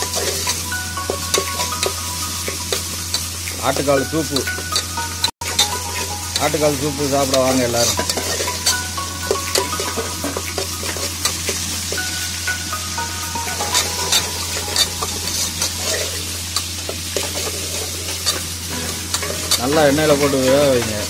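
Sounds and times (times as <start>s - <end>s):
onion and spices sizzling in oil: 0.0s - 21.0s
metal spoon scraping pot: 7.8s - 8.7s.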